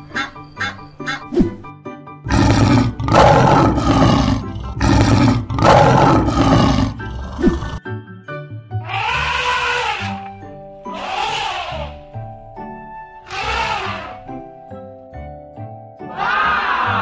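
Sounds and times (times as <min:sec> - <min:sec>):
lion roaring: 0:02.3 - 0:07.8
bouncy children's music: 0:07.8 - 0:17.0.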